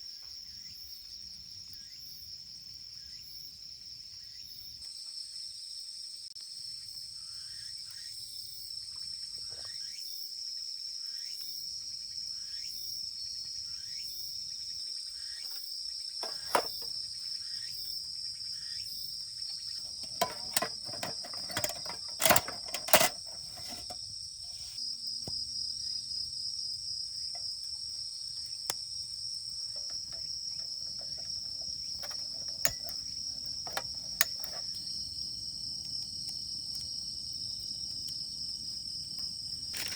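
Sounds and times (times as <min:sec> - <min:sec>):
insects chirping: 0:10.6 - 0:39.9
sharp clicks and knocks: 0:16.2 - 0:16.9, 0:19.9 - 0:24.0, 0:29.8 - 0:34.8.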